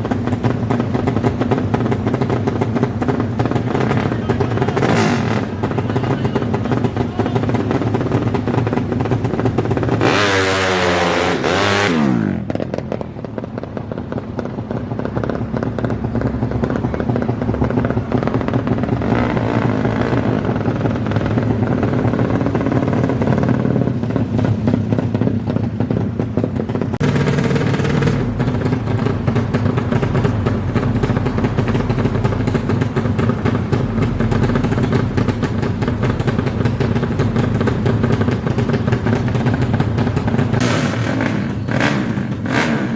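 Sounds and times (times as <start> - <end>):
racing motorcycle engines: 0.0 - 42.9
motorcycle revving past: 1.2 - 13.0, 16.7 - 25.4, 27.0 - 42.9.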